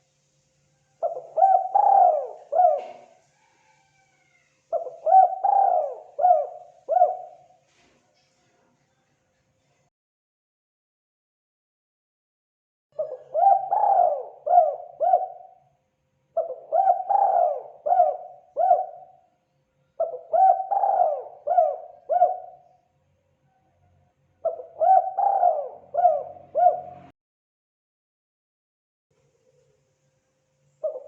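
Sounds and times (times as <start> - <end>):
dove cooing: 0.9 - 7.6, 13.0 - 15.6, 16.4 - 19.2, 20.0 - 22.8, 24.4 - 27.1.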